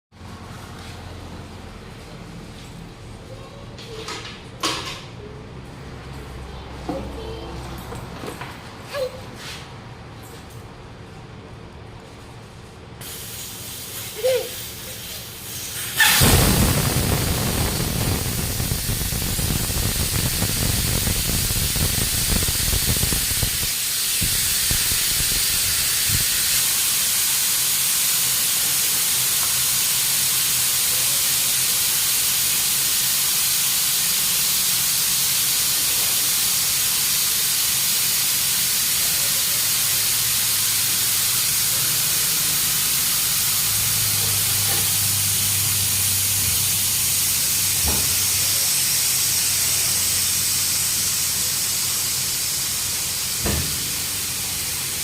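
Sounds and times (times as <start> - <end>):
steady hissing noise: 13.0 - 55.0.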